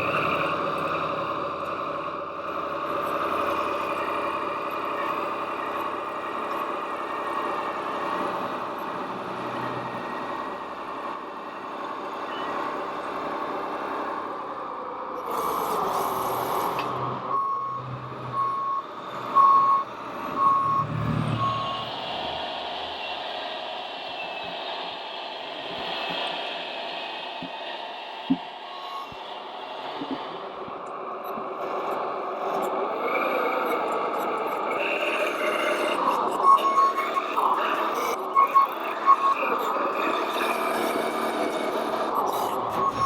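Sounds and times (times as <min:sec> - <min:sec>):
model truck motors droning: 0:00.0 - 0:43.0
reversing beeper beeping: 0:17.3 - 0:23.3, 0:42.7 - 0:43.0.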